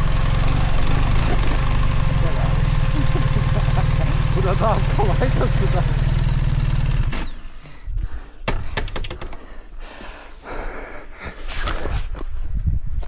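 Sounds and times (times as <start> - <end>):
low rumbling: 0.0 - 8.2.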